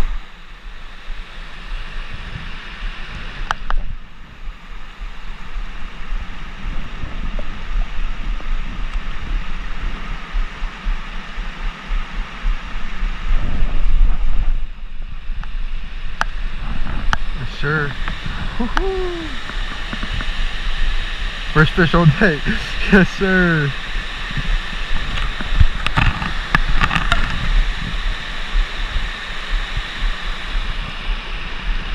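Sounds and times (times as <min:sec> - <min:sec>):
wind buffeting microphone: 0:00.0 - 0:21.6.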